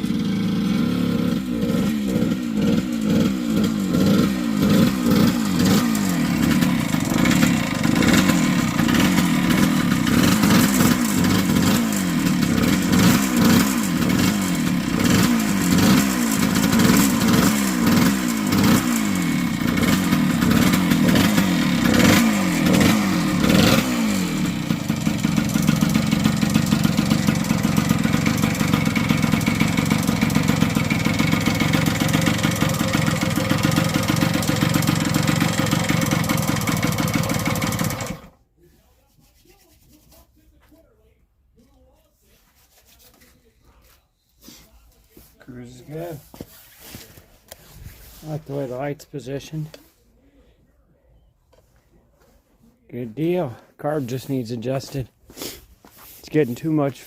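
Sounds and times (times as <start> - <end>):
two-stroke engine revving: 0.0 - 38.4, 48.2 - 49.6.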